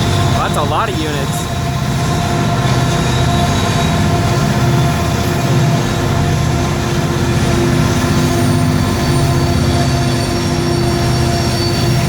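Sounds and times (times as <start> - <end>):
diesel locomotives passing: 0.0 - 12.0.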